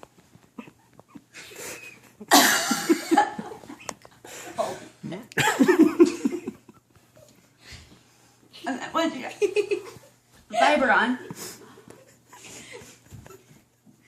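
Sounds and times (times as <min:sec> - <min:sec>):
woman coughing and gasping: 0:02.3 - 0:03.2.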